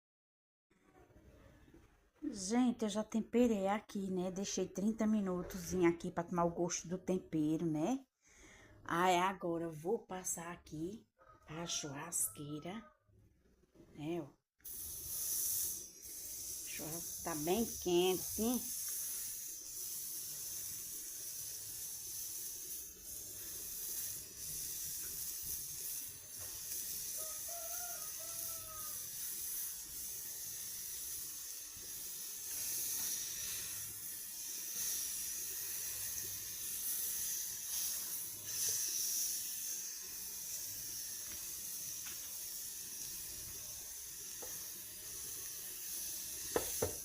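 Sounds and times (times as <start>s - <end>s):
meat sizzling on a grill: 14.7s - 47.0s.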